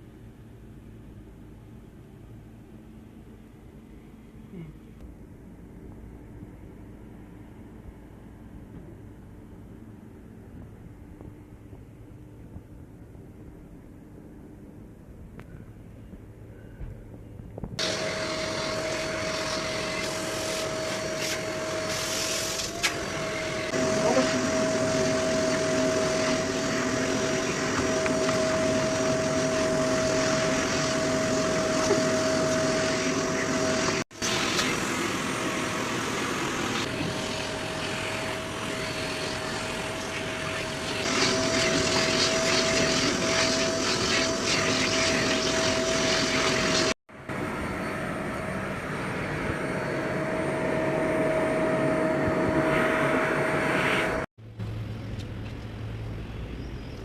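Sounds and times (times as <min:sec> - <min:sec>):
machine whoosh with whine: 0:17.8 - 0:55.1.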